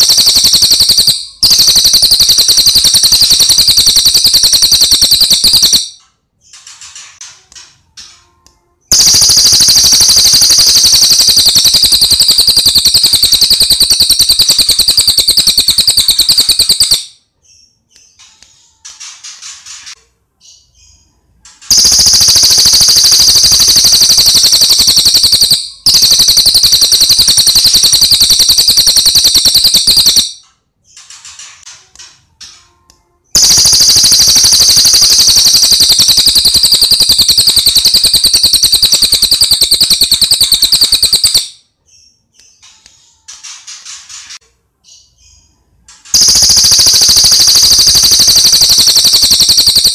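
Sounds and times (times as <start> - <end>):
bird trilling: 21.7 - 30.3.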